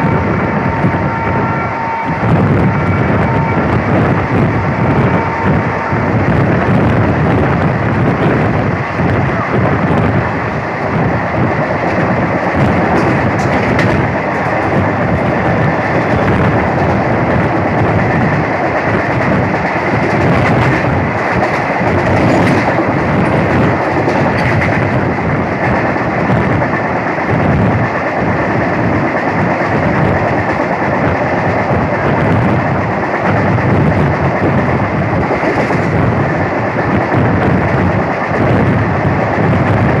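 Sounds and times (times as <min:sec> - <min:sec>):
train rumbling at speed: 0:00.0 - 0:40.0
wheels clicking over rail joints: 0:11.8 - 0:15.4, 0:16.0 - 0:25.1.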